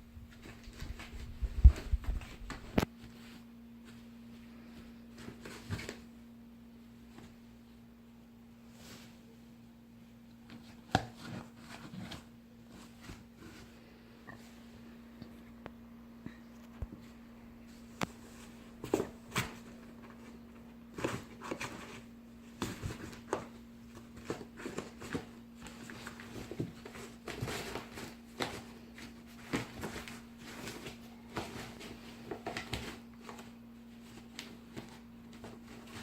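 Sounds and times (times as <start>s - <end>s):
steady low hum: 0.0s - 36.0s
cats scratching in cardboard box: 18.8s - 36.0s.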